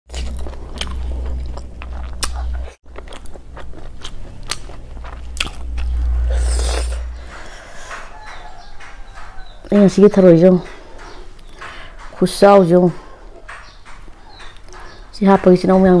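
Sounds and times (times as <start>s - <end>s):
chewing and crunching: 0.1s - 9.4s
steady low hum: 0.5s - 12.2s
loud rush of noise: 5.2s - 8.2s.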